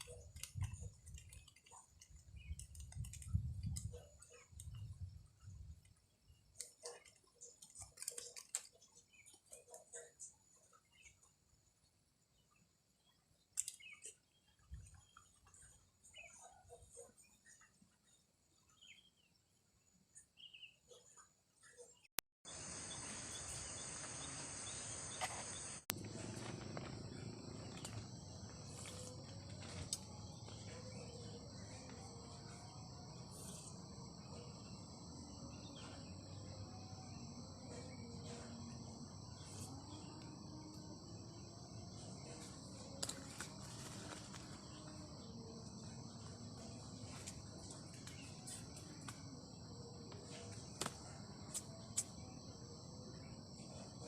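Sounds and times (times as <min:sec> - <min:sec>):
crickets chirping: 0:22.5 - 0:54.0
low wavering insect calls: 0:22.5 - 0:54.0.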